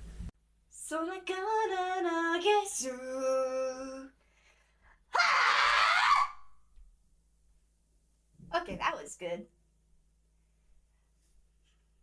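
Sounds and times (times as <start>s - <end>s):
woman singing: 0.8s - 4.2s
distorted vocal scream: 5.1s - 6.4s.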